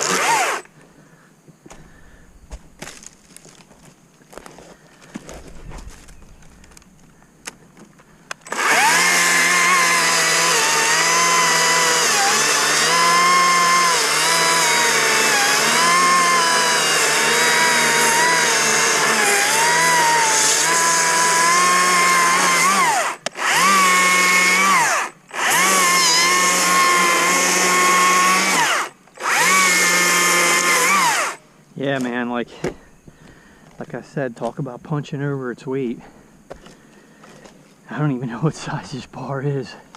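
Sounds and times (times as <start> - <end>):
battery chainsaw cutting wood: 0.0 - 0.7, 8.4 - 31.4.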